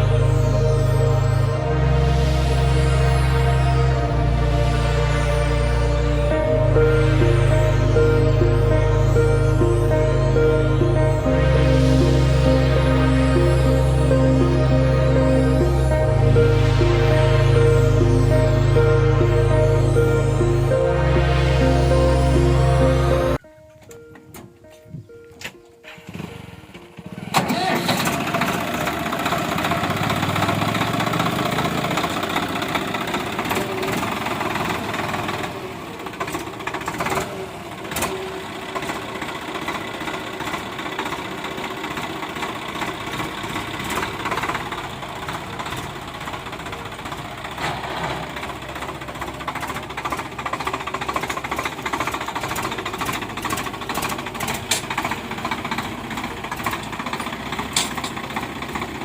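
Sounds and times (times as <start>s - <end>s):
tractor diesel engine clattering: 25.9s - 59.0s.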